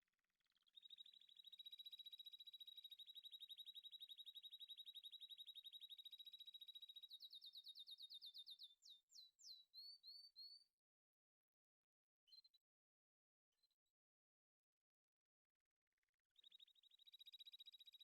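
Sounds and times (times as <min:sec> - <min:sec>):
songbird singing trills: 0:00.7 - 0:10.7, 0:16.4 - 0:18.0.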